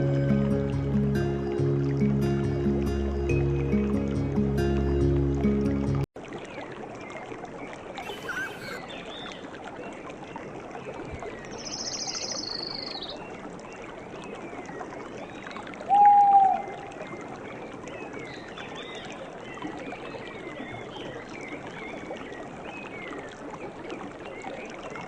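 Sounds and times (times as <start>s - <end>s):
running water: 0.0s - 25.0s
birds chirping and trilling: 8.0s - 9.3s, 11.1s - 13.3s.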